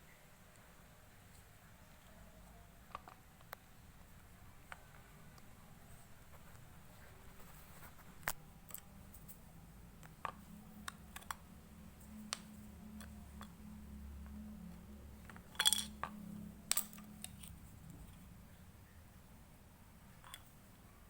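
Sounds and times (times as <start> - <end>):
faint low hum: 0.0 - 21.0
small clicks and clinks: 15.2 - 17.6, 20.2 - 20.6.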